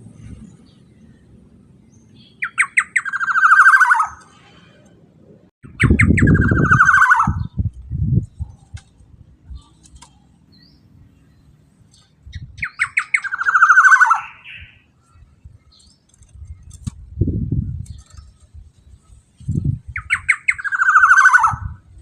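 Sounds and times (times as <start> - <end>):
bird rasping call: 2.4 - 4.3, 5.8 - 7.5, 12.6 - 14.9, 20.0 - 21.7.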